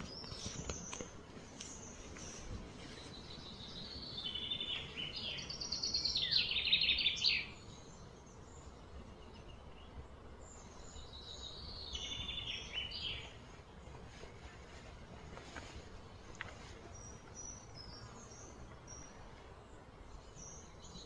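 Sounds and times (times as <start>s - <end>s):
bird singing: 0.0s - 13.9s, 16.0s - 21.0s
faint steady background noise: 0.0s - 21.0s.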